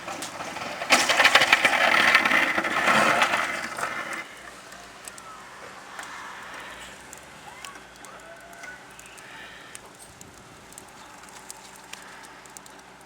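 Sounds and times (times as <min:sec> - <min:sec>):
rough scraping and rattling: 0:00.0 - 0:05.2.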